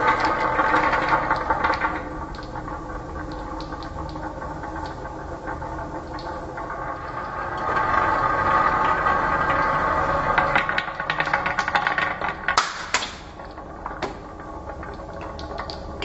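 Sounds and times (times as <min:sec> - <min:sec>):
marbles rolling on track: 0:07.2 - 0:16.0.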